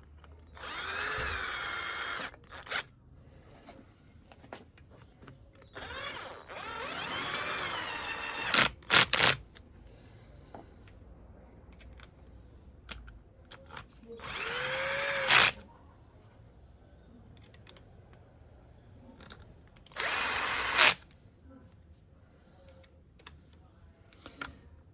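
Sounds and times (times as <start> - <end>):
electric drill motor whirring: 0.5 - 2.8, 5.7 - 9.4, 14.2 - 15.6, 19.9 - 21.0.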